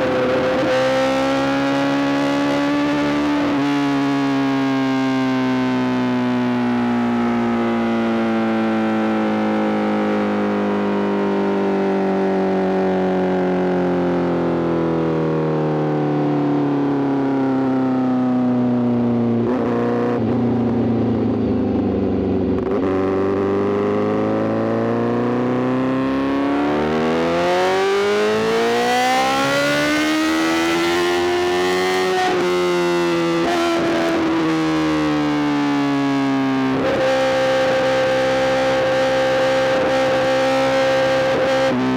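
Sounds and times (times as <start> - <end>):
motorcycle engine revving: 19.4 - 35.9.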